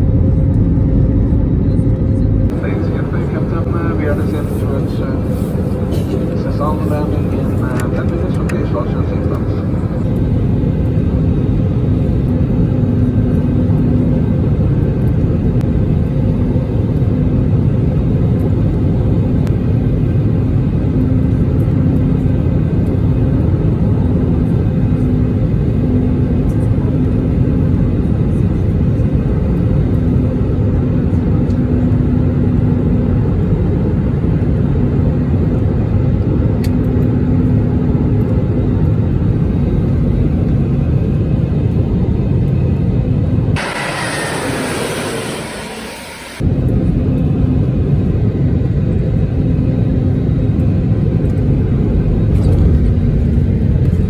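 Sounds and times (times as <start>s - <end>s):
steady low hum: 0.0s - 14.8s, 38.6s - 54.0s
airliner cabin rumble: 0.0s - 54.0s.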